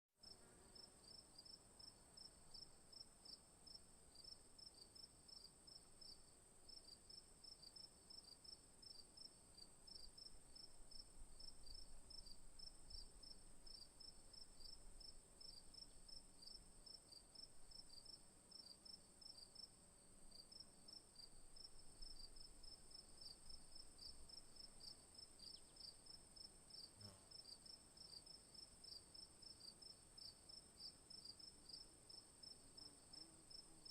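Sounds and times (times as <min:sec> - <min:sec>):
short insect chirps: 0:23.2 - 0:26.2.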